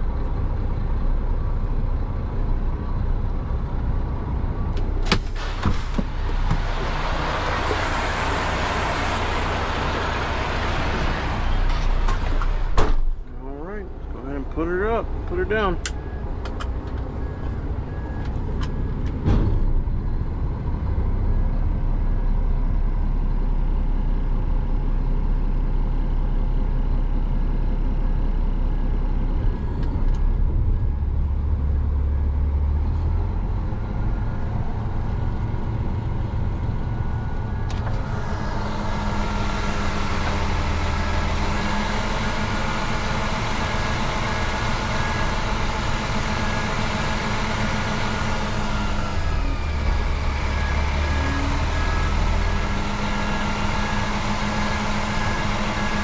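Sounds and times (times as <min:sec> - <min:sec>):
truck engine low drone: 0:00.0 - 0:56.0
hydraulic hissing rushing noise: 0:07.4 - 0:11.4.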